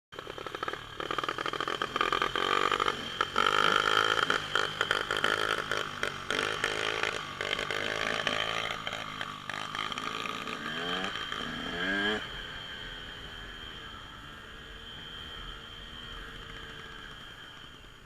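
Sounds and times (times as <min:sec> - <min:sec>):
dirt bike engine revving: 0:00.2 - 0:13.8.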